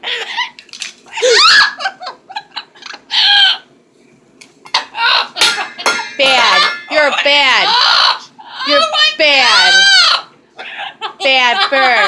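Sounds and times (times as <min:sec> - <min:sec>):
parrot laugh-like calls: 0:01.4 - 0:03.7, 0:04.8 - 0:05.4, 0:07.6 - 0:09.0.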